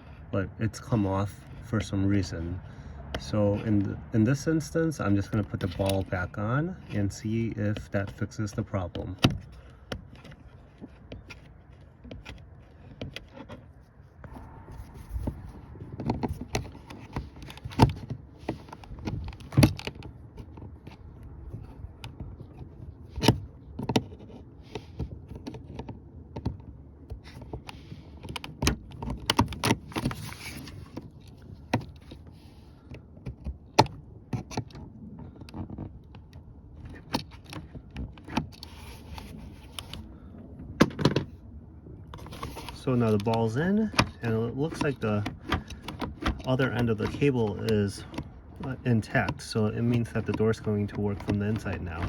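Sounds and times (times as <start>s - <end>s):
plastic clicks and knocks: 40.7s - 41.3s, 42.1s - 52.0s.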